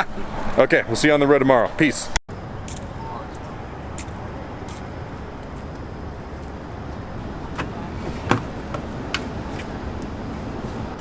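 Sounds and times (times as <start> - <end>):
car rumbling: 2.3 - 11.0.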